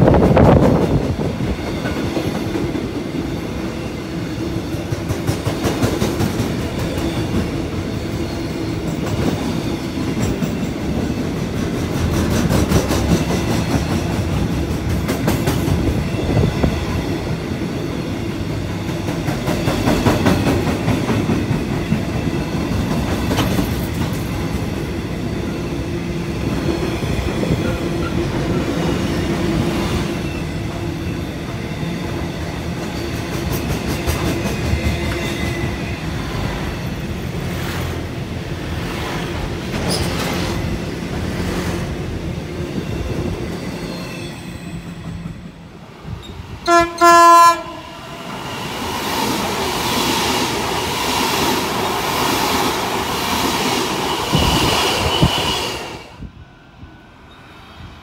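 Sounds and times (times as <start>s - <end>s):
freight train wagons rolling: 4.7s - 25.5s, 38.8s - 41.6s
wheels clicking over rail joints: 18.7s - 24.7s.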